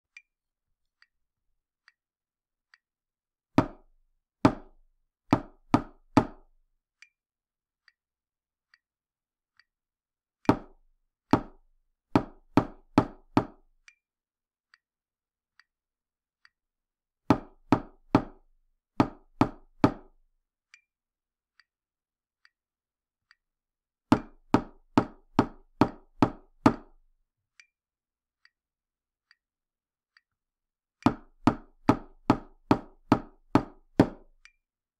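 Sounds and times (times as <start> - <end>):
faint light tick: 8.7 - 8.9, 9.5 - 9.8, 13.8 - 14.0, 23.2 - 23.5, 34.4 - 34.6.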